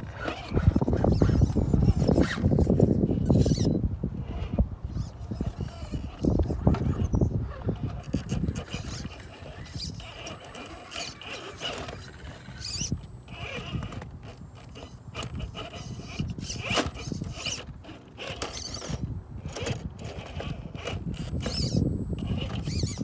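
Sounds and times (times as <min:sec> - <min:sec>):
clicks and scrapes: 0:00.0 - 0:23.0
small electric motor whirring: 0:00.0 - 0:23.0.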